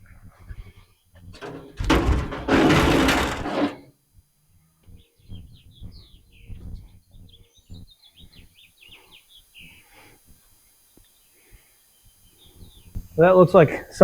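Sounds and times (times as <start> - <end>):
soft knocks of handling parts: 1.4 - 3.8.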